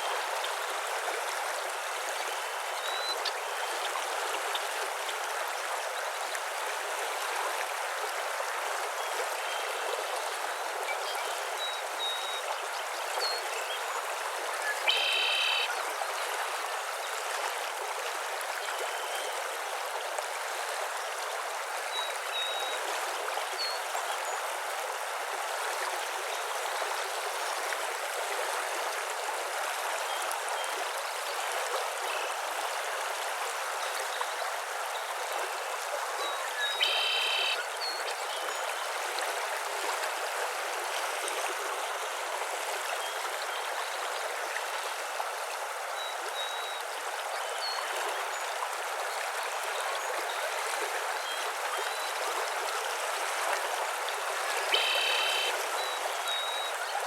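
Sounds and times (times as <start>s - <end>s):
running water: 0.0s - 57.0s
faint bird chirps: 36.3s - 38.1s, 54.7s - 57.0s
short buzzy call: 54.7s - 55.6s.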